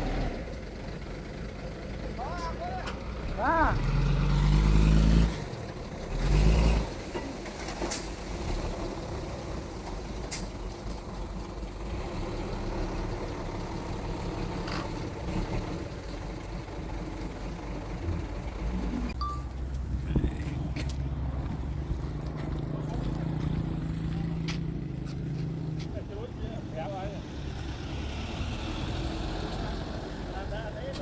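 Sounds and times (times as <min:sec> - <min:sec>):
heavy diesel engine running: 0:00.0 - 0:04.0, 0:09.0 - 0:25.0.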